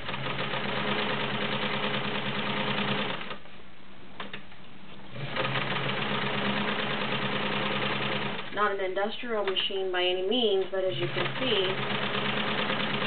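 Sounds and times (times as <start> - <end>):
sewing machine stitching leather: 0.0 - 3.4, 5.1 - 8.6, 11.0 - 13.0.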